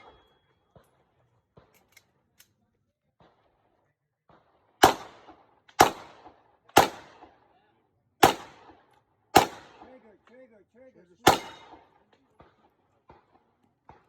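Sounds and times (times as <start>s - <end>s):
pistol shots echoing: 0.0s - 0.9s, 4.3s - 7.4s, 8.2s - 10.1s, 11.2s - 14.0s.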